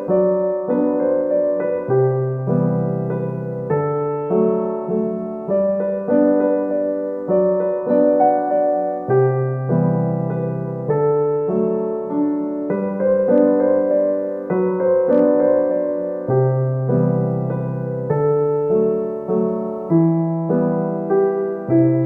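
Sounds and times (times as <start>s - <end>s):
soft piano music: 0.0s - 22.0s.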